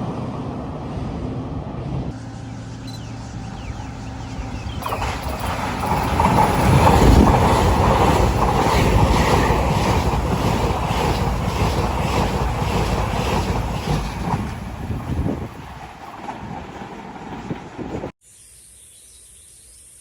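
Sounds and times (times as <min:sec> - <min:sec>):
train passing close by: 0:00.0 - 0:18.2
wind on microphone: 0:04.4 - 0:18.1.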